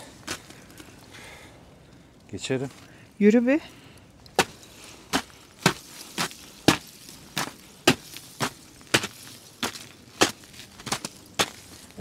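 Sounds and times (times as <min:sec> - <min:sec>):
footsteps crunching through ice: 0:04.3 - 0:12.0.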